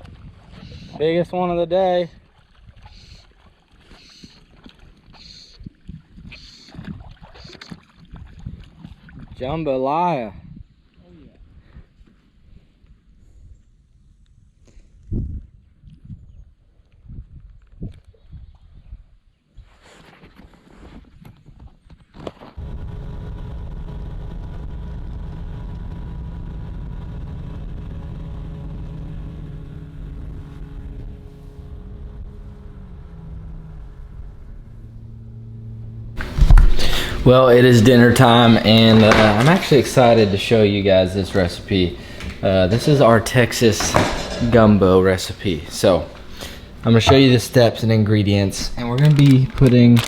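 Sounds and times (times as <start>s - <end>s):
faint knocks: 36.2s - 47.6s
water splashing against boat: 36.2s - 50.0s.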